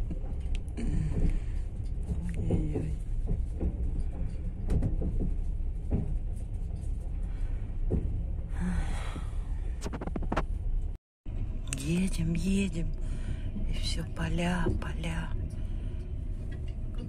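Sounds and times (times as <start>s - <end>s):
knocks and rattles: 0.0s - 8.5s
train carriage rumbling on rails: 0.0s - 17.0s.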